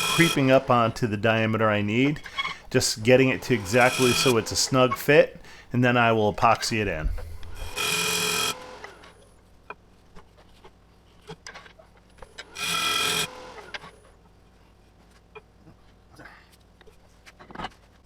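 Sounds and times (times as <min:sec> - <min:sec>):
lathe cutting tool buzzing: 0:00.0 - 0:09.1, 0:12.5 - 0:14.0.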